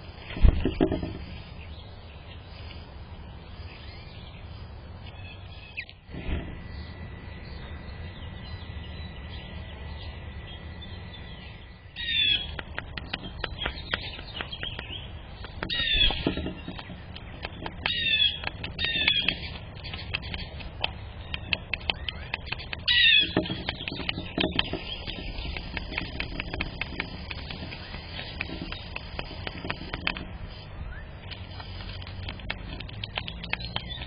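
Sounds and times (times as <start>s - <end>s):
small birds chirping: 0.0s - 34.0s
steady low rumble: 0.0s - 34.0s
sharp taps: 12.4s - 30.3s.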